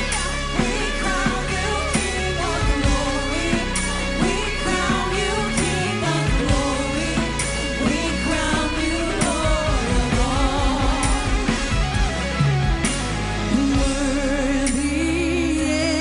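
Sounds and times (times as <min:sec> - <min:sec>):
drum accents: 0:00.0 - 0:15.0
worship band with singing: 0:00.0 - 0:16.0.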